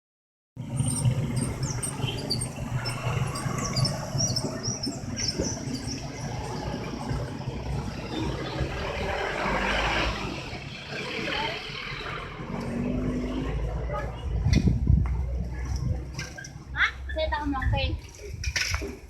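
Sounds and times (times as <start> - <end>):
vehicle passing: 0.6 - 14.8
road traffic hum: 0.6 - 19.0
small birds chirping: 0.8 - 6.6.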